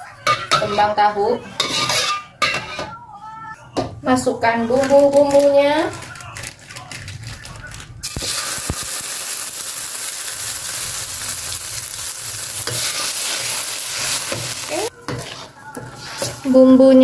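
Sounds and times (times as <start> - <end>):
metal spatula scraping a wok: 0.2 - 2.9, 11.7 - 17.0
paste sizzling in hot oil: 8.0 - 16.6.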